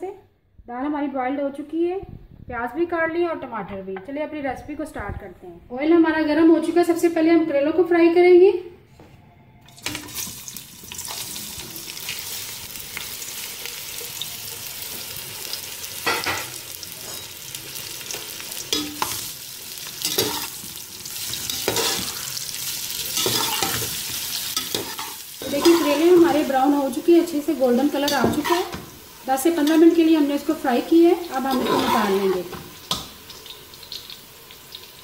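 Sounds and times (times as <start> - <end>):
vegetable slices sizzling in oil: 9.8 - 35.0
spoon scraping pot: 24.6 - 26.5, 31.4 - 32.6.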